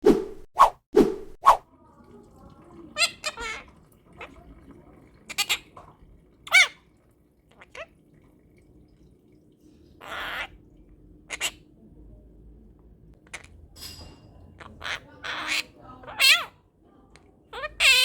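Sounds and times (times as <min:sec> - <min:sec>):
parrot rasping squawk: 0:03.0 - 0:03.7, 0:05.3 - 0:05.7, 0:06.4 - 0:06.8, 0:07.5 - 0:07.9, 0:10.0 - 0:10.6, 0:11.3 - 0:11.6, 0:14.6 - 0:16.6, 0:17.5 - 0:18.0
parrot calls and chirps: 0:03.0 - 0:04.3, 0:05.3 - 0:05.7, 0:06.4 - 0:06.8, 0:07.5 - 0:07.9, 0:10.0 - 0:10.6, 0:11.2 - 0:11.7, 0:13.2 - 0:13.7, 0:14.5 - 0:16.7, 0:17.5 - 0:18.0.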